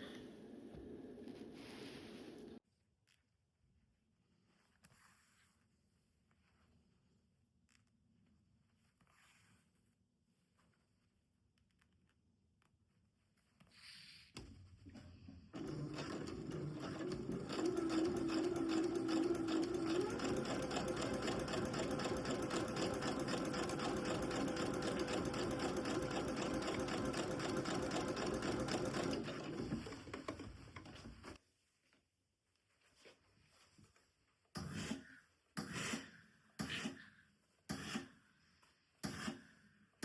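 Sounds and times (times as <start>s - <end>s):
soft handling sounds: 1.2s - 15.5s, 29.8s - 34.5s
sewing machine stitching: 15.5s - 31.4s.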